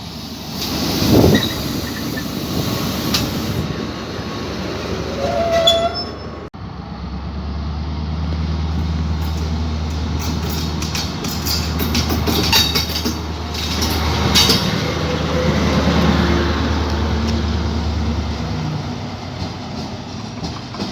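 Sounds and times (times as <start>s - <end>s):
train rumbling: 0.0s - 20.9s
wheel squeal: 1.0s - 3.3s, 5.1s - 6.5s.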